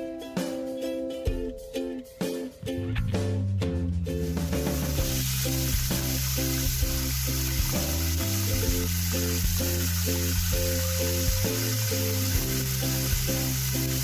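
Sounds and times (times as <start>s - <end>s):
chicken sizzling in a pan: 4.5s - 14.0s.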